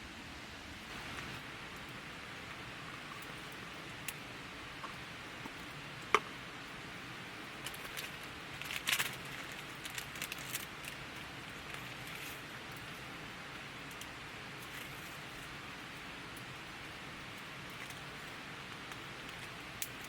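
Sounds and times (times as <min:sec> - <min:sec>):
steady hiss: 0:00.0 - 0:20.0
campfire crackling: 0:00.7 - 0:20.0.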